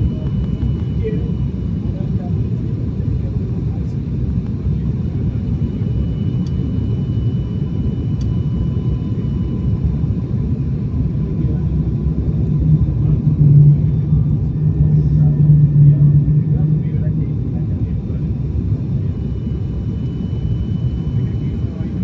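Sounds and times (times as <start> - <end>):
low hum: 0.0 - 2.5, 11.4 - 22.0
jet engine and airflow rumble: 0.0 - 22.0.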